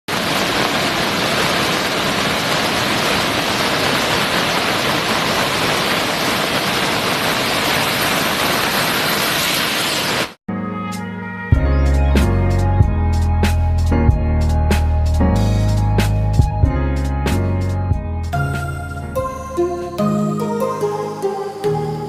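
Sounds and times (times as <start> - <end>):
water rushing: 0.1 - 10.4.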